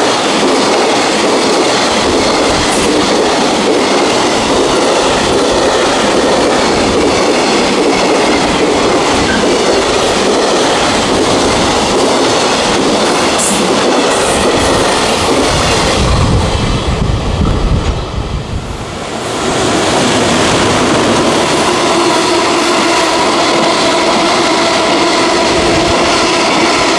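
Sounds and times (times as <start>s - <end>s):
freight train wheels clattering: 0.0s - 18.1s.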